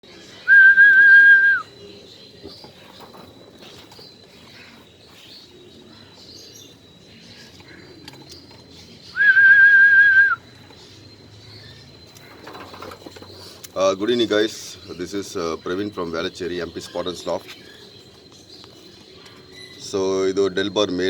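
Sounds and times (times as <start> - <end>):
faint bird chirps: 0.0 - 21.0
high steady whistle: 0.5 - 1.7, 9.2 - 10.4.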